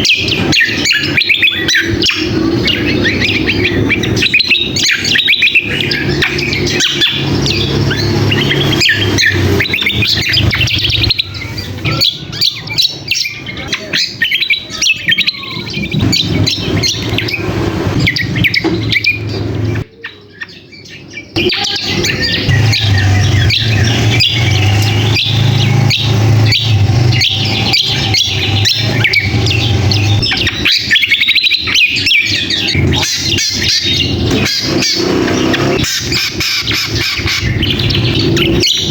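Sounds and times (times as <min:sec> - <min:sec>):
birds chirping and squawking: 0:00.0 - 0:38.9.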